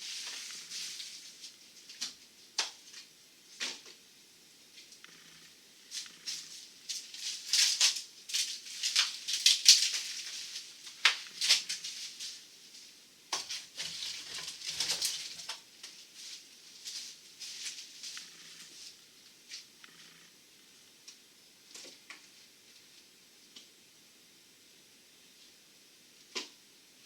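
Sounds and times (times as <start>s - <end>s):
debris rustling and scraping: 0.0s - 2.1s, 5.0s - 12.5s, 13.4s - 19.0s.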